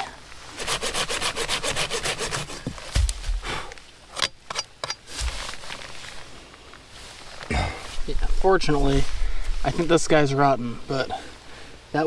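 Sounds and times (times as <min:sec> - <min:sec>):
blade sawing: 0:00.5 - 0:03.6
dull thumps: 0:02.5 - 0:03.8, 0:05.1 - 0:05.8.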